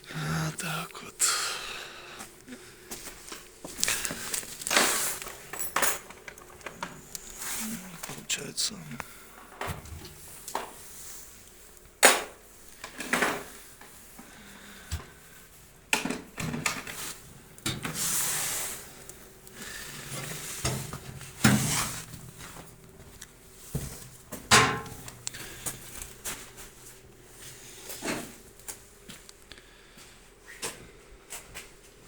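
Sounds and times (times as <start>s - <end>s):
scraping or rustling noise: 3.7s - 5.5s, 20.0s - 22.7s.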